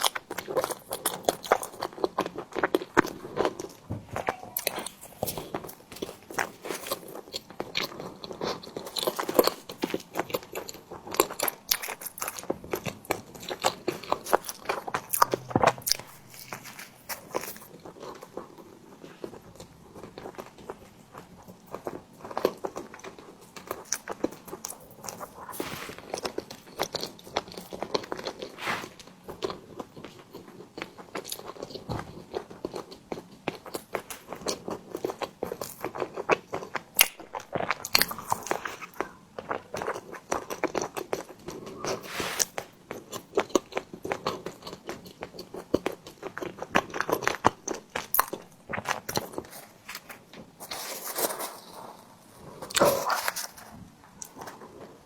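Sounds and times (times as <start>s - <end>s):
biting and chewing: 0.0s - 51.9s.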